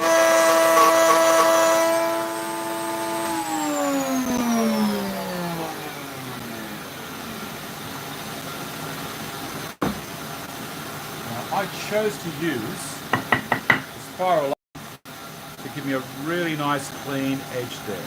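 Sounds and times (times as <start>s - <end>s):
router spinning and winding down: 0.0s - 7.4s
dust extractor running: 0.0s - 9.6s.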